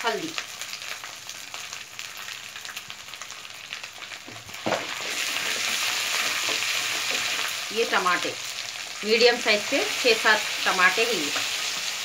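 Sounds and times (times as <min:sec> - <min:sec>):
masala sizzling in hot oil: 0:00.0 - 0:12.0.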